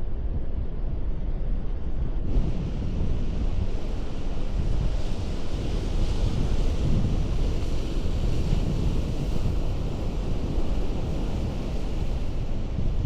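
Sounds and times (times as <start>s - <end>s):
wind buffeting microphone: 0.0s - 13.0s
sea surf on rocky shore: 2.9s - 13.0s.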